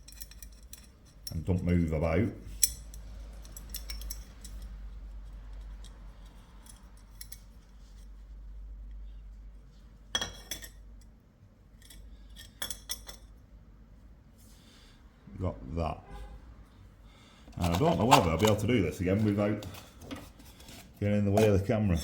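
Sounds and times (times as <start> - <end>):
small metal parts clicking: 0.0 - 1.4, 2.5 - 4.8.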